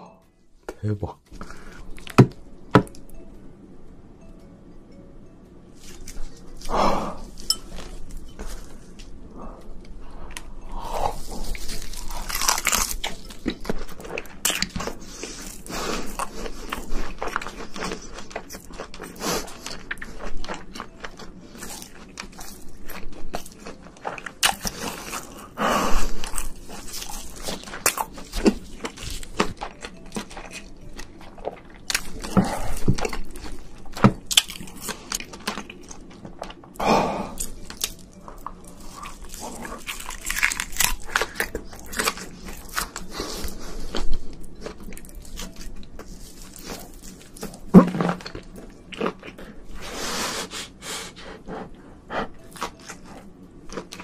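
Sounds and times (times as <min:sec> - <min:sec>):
person biting and chewing: 0:10.3 - 0:50.7.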